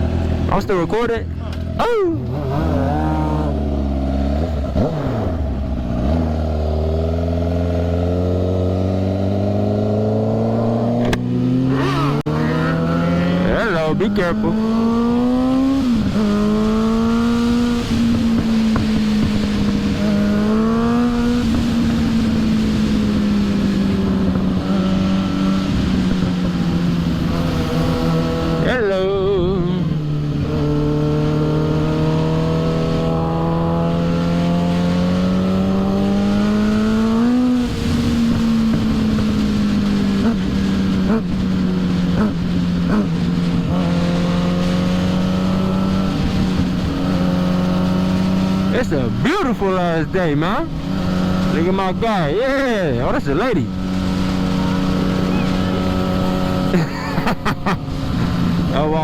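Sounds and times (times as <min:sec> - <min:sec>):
motorcycle engine running: 0:14.3 - 0:59.0.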